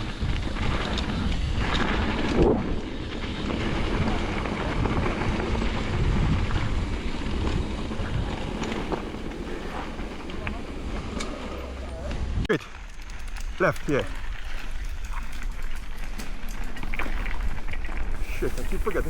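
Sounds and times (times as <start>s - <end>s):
wind rushing over microphone: 0.0s - 12.5s
bike rattling over dirt: 0.0s - 19.0s.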